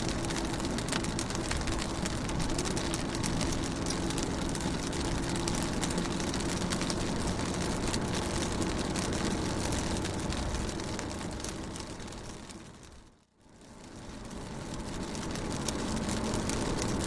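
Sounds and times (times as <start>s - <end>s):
low rumble: 0.0s - 13.0s
rain pattering on car roof: 0.0s - 17.0s.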